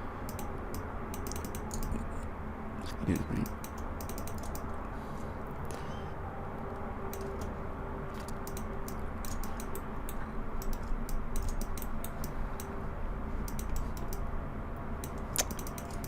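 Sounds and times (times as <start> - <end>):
low hum: 0.0 - 16.0
keyboard and mouse clicking: 0.2 - 2.0, 3.1 - 4.7, 8.2 - 12.7, 13.4 - 14.3, 15.0 - 16.0.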